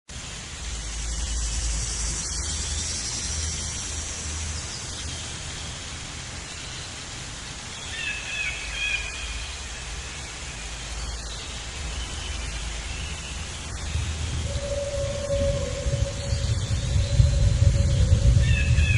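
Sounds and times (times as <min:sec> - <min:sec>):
low wind rumble: 0:00.1 - 0:18.9
steady hiss: 0:00.1 - 0:18.9.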